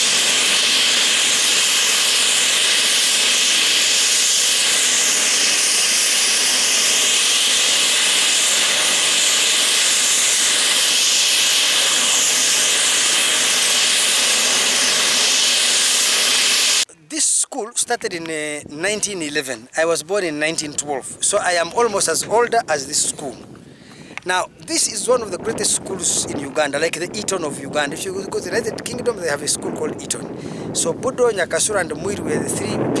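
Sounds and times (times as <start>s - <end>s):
helicopter running: 0.0s - 16.8s.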